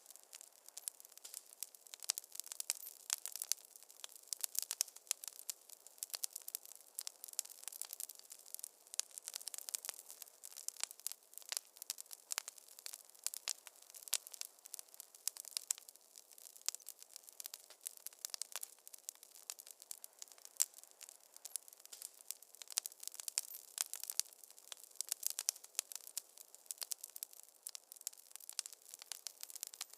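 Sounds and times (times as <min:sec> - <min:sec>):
wood fire crackling: 0:00.0 - 0:29.9.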